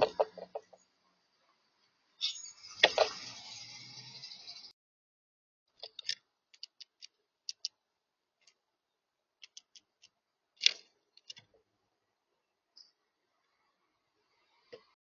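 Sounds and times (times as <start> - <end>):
birds ticking and clicking: 0.0 - 0.9, 5.7 - 7.8, 9.4 - 11.6.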